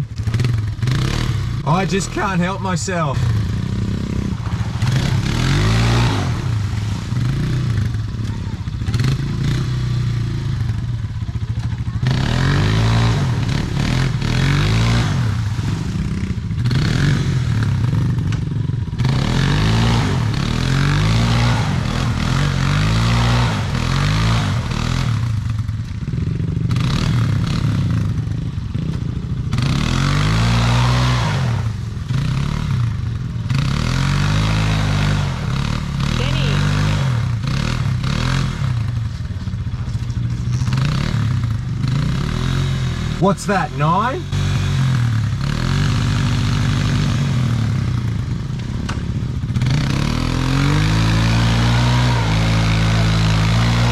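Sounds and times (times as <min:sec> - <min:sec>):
dirt bike engine revving: 0:00.0 - 0:10.8, 0:12.0 - 0:18.3, 0:18.9 - 0:28.9, 0:29.5 - 0:39.0, 0:40.5 - 0:48.3, 0:49.4 - 0:53.9
clatter: 0:39.0 - 0:42.4.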